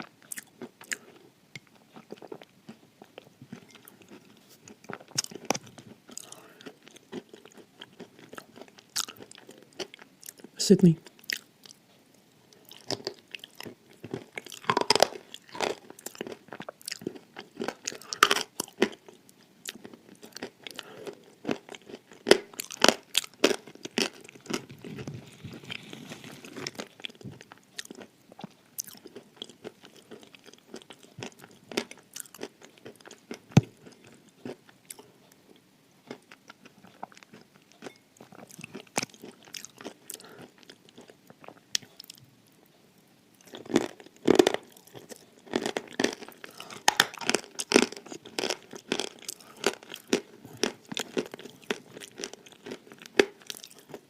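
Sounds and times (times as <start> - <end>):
chewing crunchy clay: 0.0 - 10.5, 12.6 - 35.1, 36.1 - 42.2.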